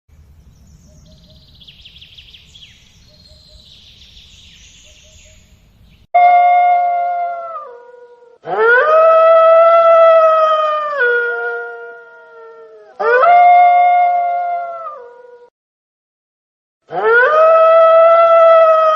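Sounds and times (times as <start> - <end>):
faint chirping: 0.1 - 6.1
wolf howling: 6.2 - 15.5, 16.9 - 18.9.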